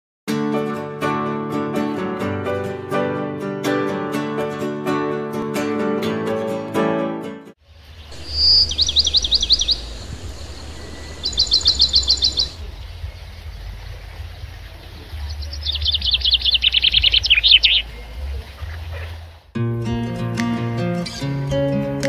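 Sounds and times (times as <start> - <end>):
songbird trilling: 7.9 - 19.2.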